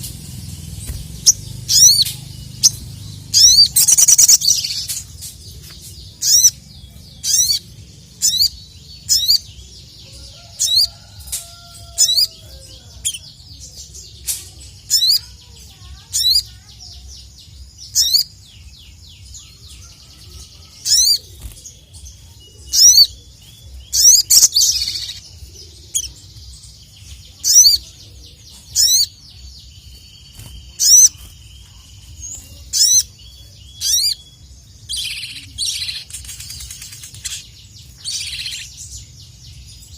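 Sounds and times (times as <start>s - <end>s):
steady low hum: 0.0s - 10.0s
bird singing sharp sweeping notes: 0.0s - 39.9s.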